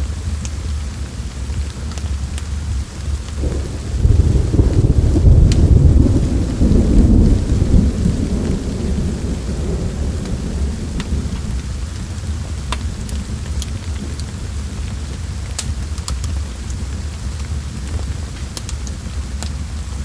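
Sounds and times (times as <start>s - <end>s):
steady rain: 0.0s - 20.0s
thunder rumbling: 3.3s - 13.4s.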